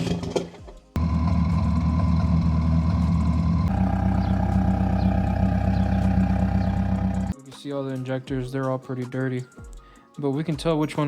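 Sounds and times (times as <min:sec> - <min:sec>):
car engine running: 0:01.0 - 0:07.4.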